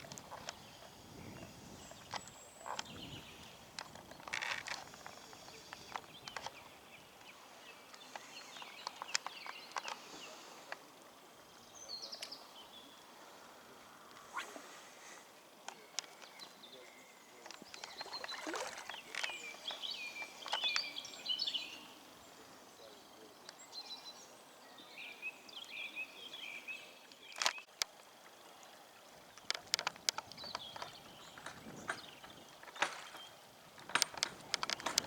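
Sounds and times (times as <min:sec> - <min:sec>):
small birds singing: 0:00.0 - 0:13.7, 0:15.0 - 0:35.0
sharp clicks: 0:33.8 - 0:35.0.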